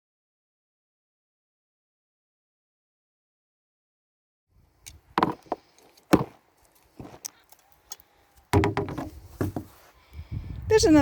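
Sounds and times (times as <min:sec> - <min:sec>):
garden tool striking soil: 0:04.9 - 0:09.8
scrape and rustle of soil: 0:05.4 - 0:08.5, 0:09.1 - 0:10.2.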